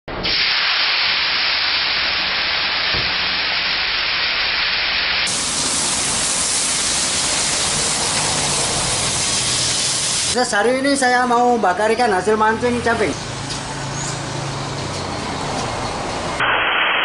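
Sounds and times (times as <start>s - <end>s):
fish sizzling on a pan: 0.2s - 10.4s
sauce sizzling in a hot pan: 0.2s - 10.4s.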